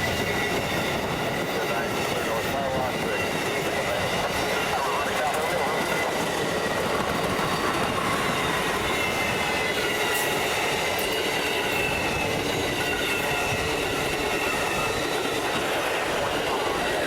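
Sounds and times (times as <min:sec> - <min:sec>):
train wheels rumbling on rails: 0:00.0 - 0:17.0
high wheel squeal: 0:07.3 - 0:15.6.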